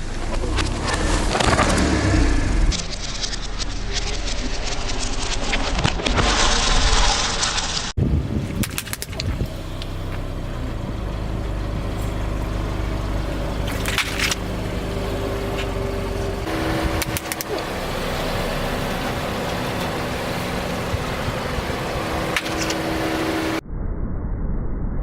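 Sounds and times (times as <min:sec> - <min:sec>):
car engine running: 0:08.2 - 0:23.6.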